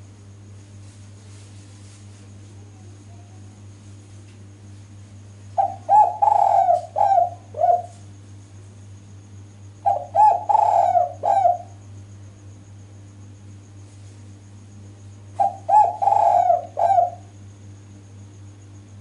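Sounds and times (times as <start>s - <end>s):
steady low hum: 0.0s - 19.0s
dove cooing: 5.6s - 8.0s, 9.8s - 11.8s, 15.4s - 17.4s.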